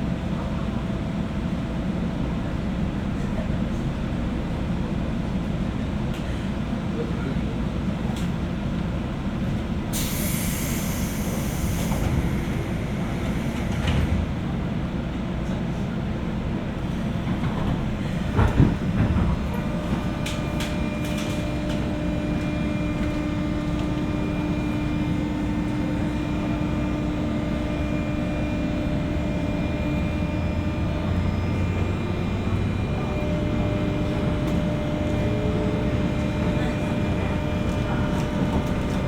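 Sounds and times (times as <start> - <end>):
train running rumble: 0.0 - 39.0.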